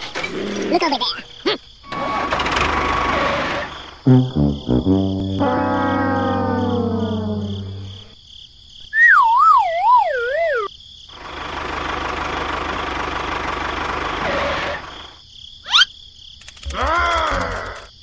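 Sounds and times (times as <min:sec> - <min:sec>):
brass note trailing off: 0:04.1 - 0:08.0
warbling whistle: 0:09.0 - 0:10.7.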